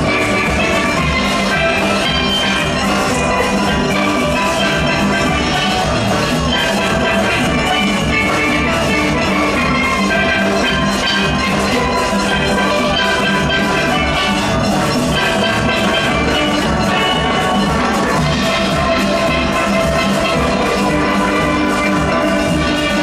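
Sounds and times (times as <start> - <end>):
drums and percussion beat: 0.0 - 23.0
steelpans playing melody: 0.0 - 23.0.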